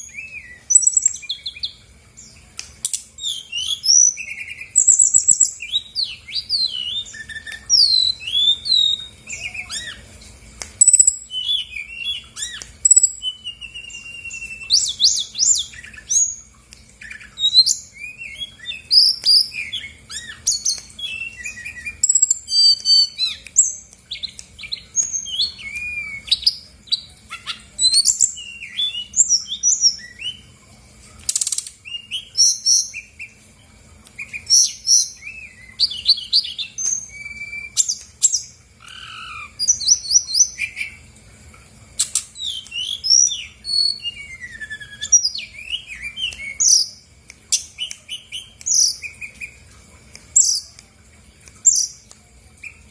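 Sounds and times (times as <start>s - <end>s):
bird singing whistled chirps: 0.0s - 1.8s, 3.2s - 10.1s, 10.8s - 30.5s, 31.3s - 33.4s, 34.2s - 41.0s, 42.0s - 49.6s, 50.4s - 50.7s.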